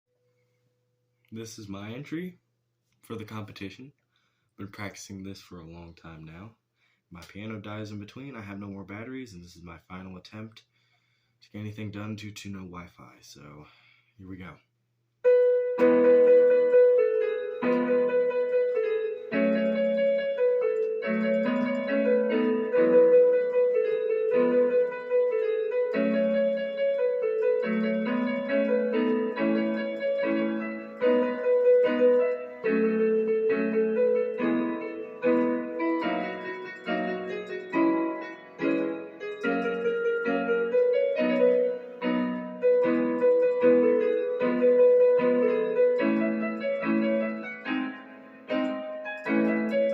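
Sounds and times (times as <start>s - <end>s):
electronic keyboard piece: 15.2s - 49.9s.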